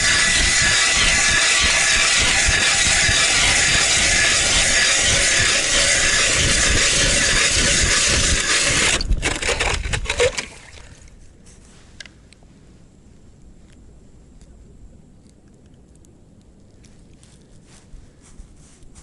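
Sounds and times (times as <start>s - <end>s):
ice auger grinding: 0.0s - 10.7s.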